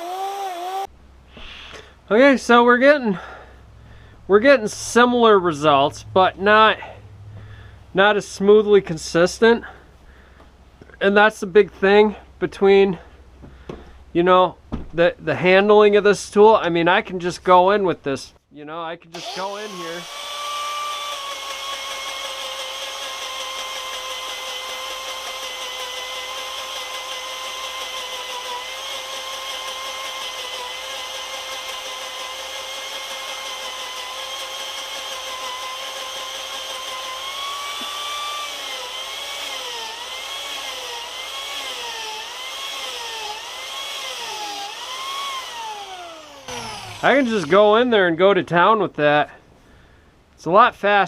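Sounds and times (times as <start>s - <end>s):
spiral saw motor whining: 0.0s - 0.9s, 19.2s - 48.0s.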